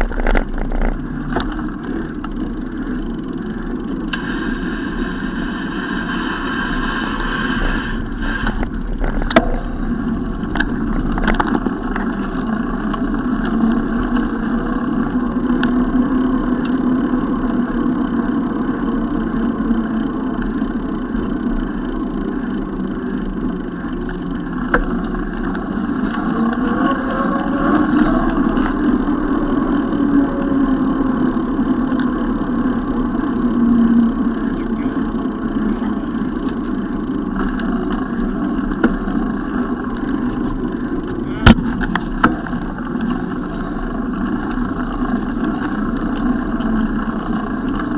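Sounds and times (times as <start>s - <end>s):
passing traffic: 0.0s - 47.9s
wind and road noise cycling: 0.0s - 47.9s.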